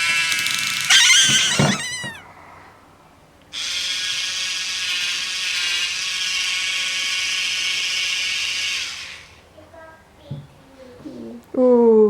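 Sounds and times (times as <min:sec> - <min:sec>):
toy drill whirring buzz: 0:00.9 - 0:02.2, 0:04.0 - 0:09.3.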